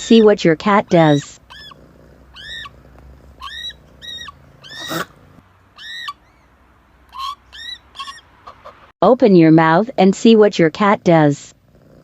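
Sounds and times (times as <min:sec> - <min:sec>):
cat chirping: 0:01.0 - 0:02.8, 0:03.4 - 0:05.2, 0:05.8 - 0:06.5.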